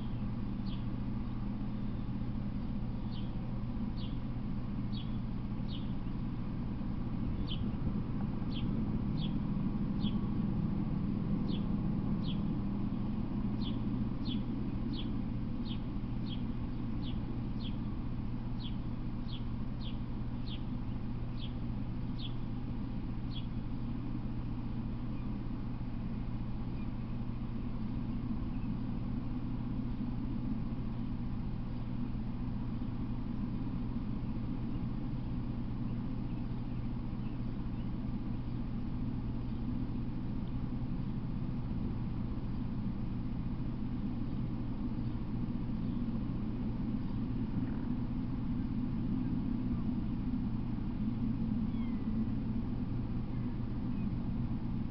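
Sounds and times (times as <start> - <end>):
bird chirping: 0.0 - 0.9, 3.0 - 3.4, 4.0 - 4.2, 4.9 - 6.1, 7.3 - 7.8, 8.4 - 9.4, 10.0 - 10.3, 11.4 - 13.0, 13.6 - 17.9, 18.6 - 21.6, 22.2 - 22.5, 23.3 - 23.6, 51.6 - 52.2
low hum and rumble: 0.0 - 54.9.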